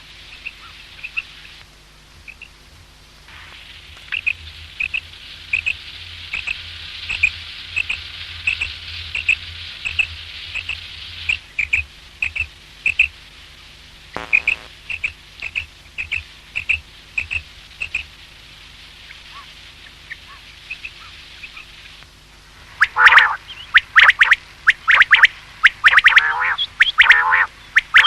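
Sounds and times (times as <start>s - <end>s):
steady hiss: 0.0s - 28.0s
low buzzy call: 14.1s - 15.1s, 22.8s - 28.0s
quail calling: 22.8s - 28.0s.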